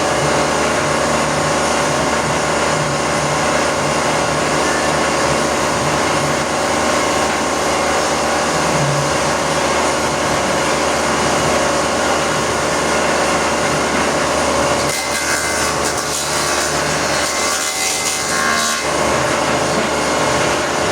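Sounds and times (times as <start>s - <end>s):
hissing wood cutting: 0.0s - 20.9s
planer machine running: 0.0s - 20.9s.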